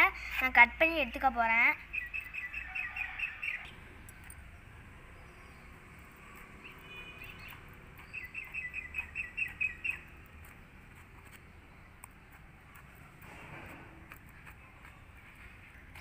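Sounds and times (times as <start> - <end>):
small bird chirping: 1.8 - 4.4, 5.2 - 13.1.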